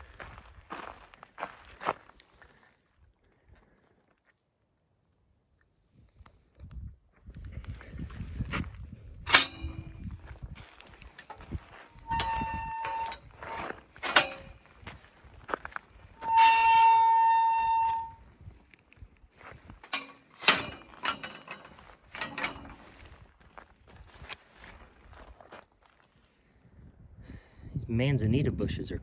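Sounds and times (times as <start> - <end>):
horn-like tones: 12.0 - 14.5, 16.2 - 18.2.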